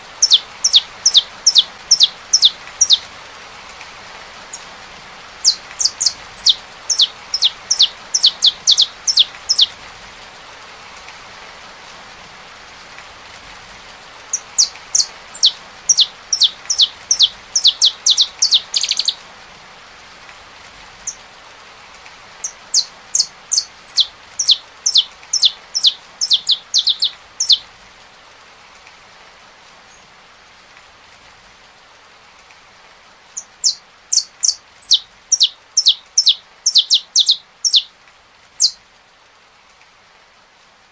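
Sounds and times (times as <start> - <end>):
rain hissing: 0.0 - 40.9
finch singing: 0.1 - 3.1, 5.4 - 9.8, 14.3 - 19.2, 22.4 - 27.6, 33.4 - 37.9, 38.6 - 38.8.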